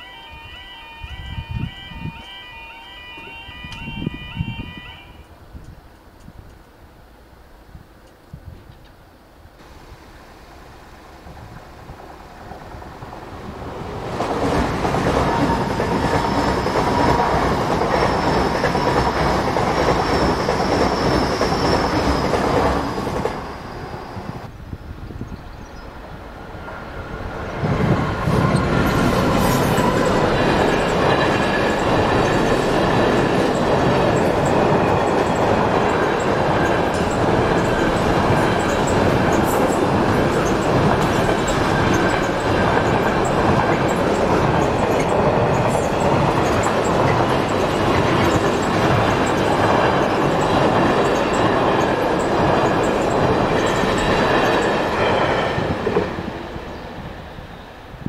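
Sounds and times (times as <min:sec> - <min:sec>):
freight train passing: 0:00.0 - 0:08.3, 0:09.2 - 0:58.0
wheel squeal: 0:15.6 - 0:24.4.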